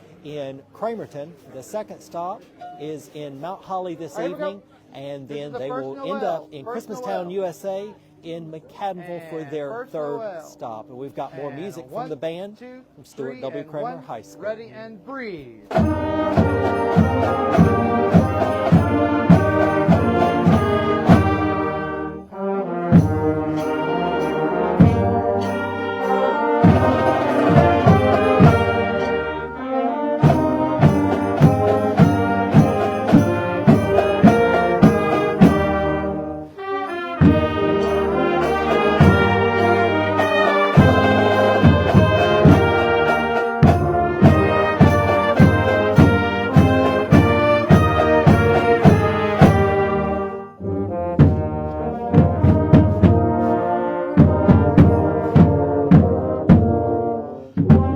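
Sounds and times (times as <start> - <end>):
steady drum beat: 15.6 - 22.1, 22.9 - 29.4, 30.2 - 36.4, 37.1 - 57.9
marching band brass: 15.6 - 57.9.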